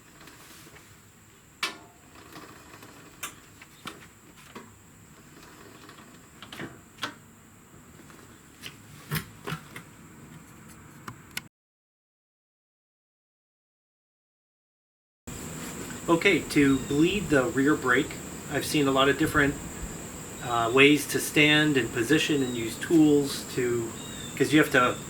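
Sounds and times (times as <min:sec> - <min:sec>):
faint background noise: 0:15.3 - 0:25.0.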